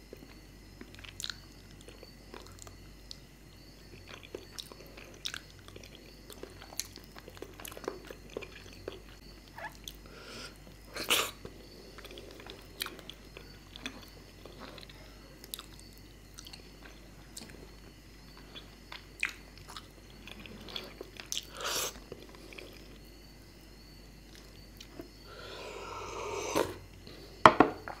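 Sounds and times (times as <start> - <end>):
chewing mouth clicks and smacks: 12.0 - 17.6, 18.5 - 21.5.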